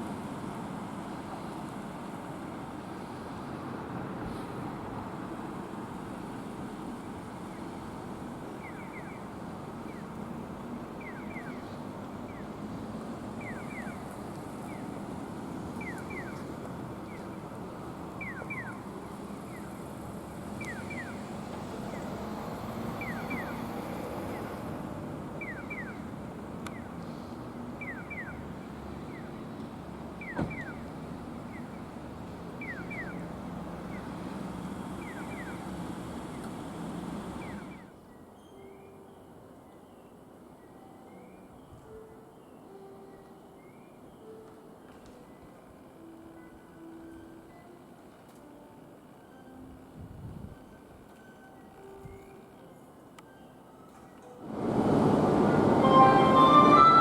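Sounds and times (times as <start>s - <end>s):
train rumbling at a platform: 0.0s - 38.4s, 52.9s - 57.0s.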